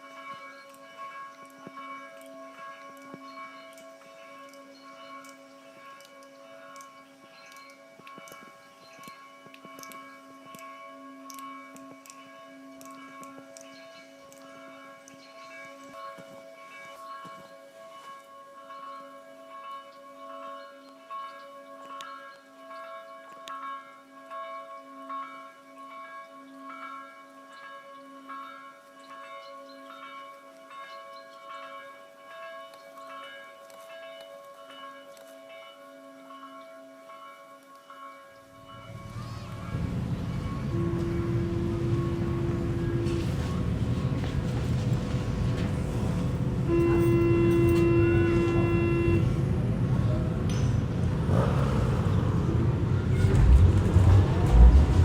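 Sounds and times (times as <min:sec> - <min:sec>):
traffic rumble: 0:38.8 - 0:55.0
horn blast: 0:39.1 - 0:44.2, 0:46.6 - 0:49.7, 0:52.6 - 0:55.0.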